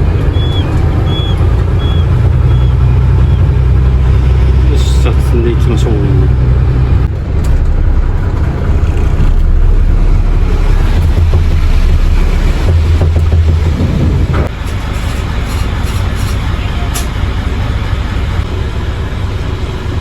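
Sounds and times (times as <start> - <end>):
heavy engine rumbling: 0.0 - 20.0.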